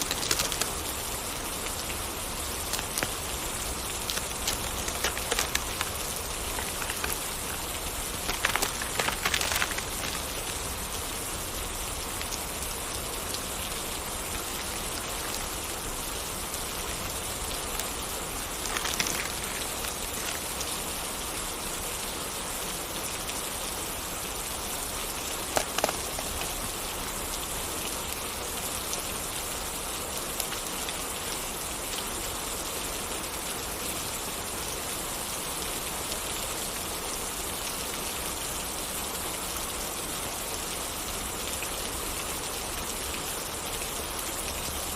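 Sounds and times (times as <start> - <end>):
steady rain hiss: 0.0 - 44.9
sharp pops: 25.5 - 26.4.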